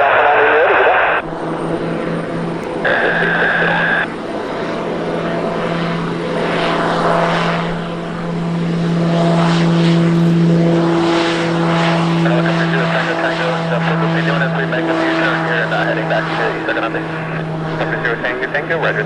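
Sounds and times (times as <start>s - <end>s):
propeller aircraft drone: 0.0s - 19.0s
rushing noise: 2.8s - 4.1s.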